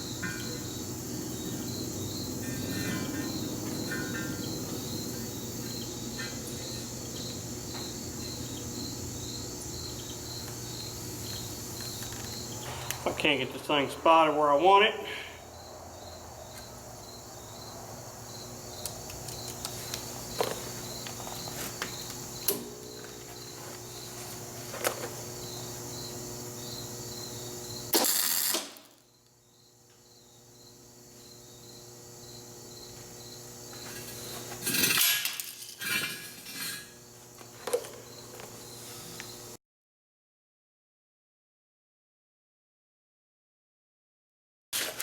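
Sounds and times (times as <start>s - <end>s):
steady electrical hum: 0.0s - 39.6s
welding crackle: 27.8s - 29.0s.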